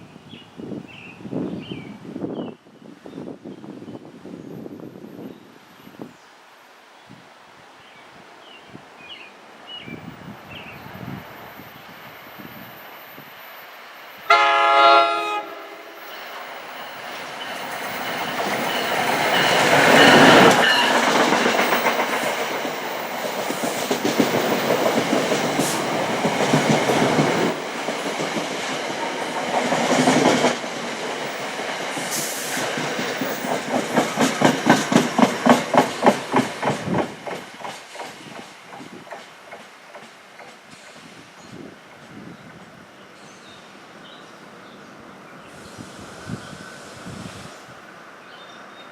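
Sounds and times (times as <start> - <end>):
rush of passing train: 0.2 - 7.2, 8.1 - 48.9
train horn blast: 14.2 - 16.1, 20.0 - 21.1
wheels clacking over rail joints: 16.2 - 40.9.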